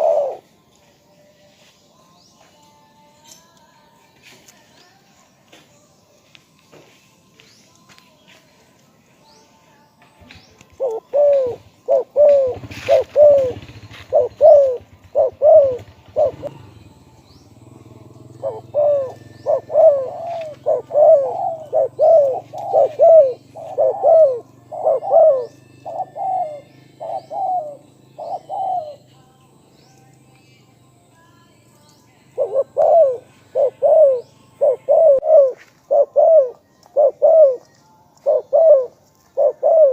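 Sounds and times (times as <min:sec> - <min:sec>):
dove cooing: 0:00.0 - 0:00.5, 0:10.7 - 0:29.1, 0:32.3 - 0:39.9.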